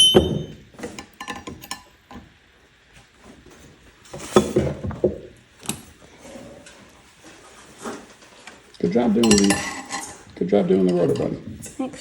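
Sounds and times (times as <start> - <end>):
metal hand tools clinking: 9.1 - 10.2.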